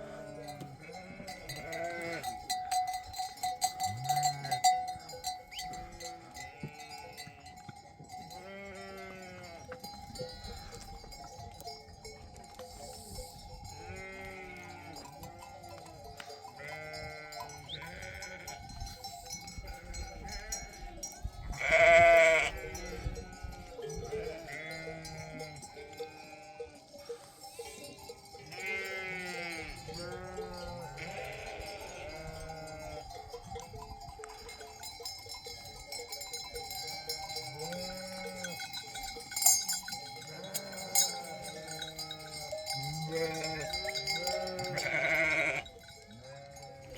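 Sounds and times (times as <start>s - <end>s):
sheep bleating: 0.0s - 2.4s, 3.9s - 4.8s, 5.6s - 7.5s, 8.3s - 9.7s, 13.8s - 15.5s, 16.6s - 18.6s, 21.6s - 27.4s, 28.4s - 33.1s, 37.1s - 38.7s, 40.2s - 46.9s
livestock bells ringing: 0.0s - 46.9s.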